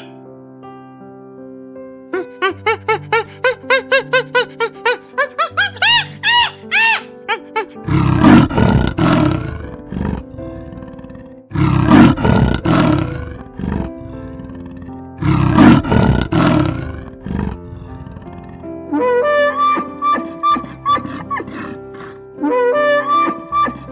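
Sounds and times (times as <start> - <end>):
background music: 0.0 - 23.9
leopard rasping roar: 7.8 - 23.9.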